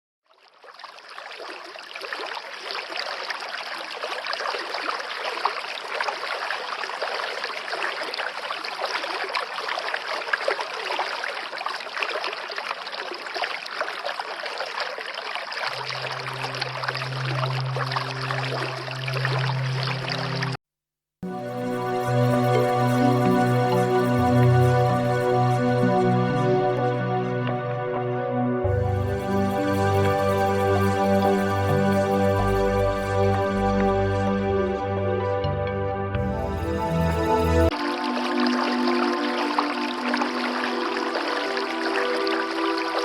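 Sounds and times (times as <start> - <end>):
flowing water: 0.3 - 20.6, 21.2 - 27.6, 28.6 - 35.5, 36.1 - 43.0
low sustained music notes: 15.8 - 20.6, 21.2 - 43.0.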